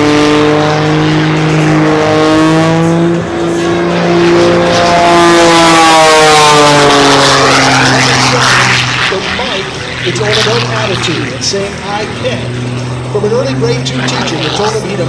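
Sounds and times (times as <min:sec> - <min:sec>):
propeller airplane engine overhead: 0:00.0 - 0:15.0.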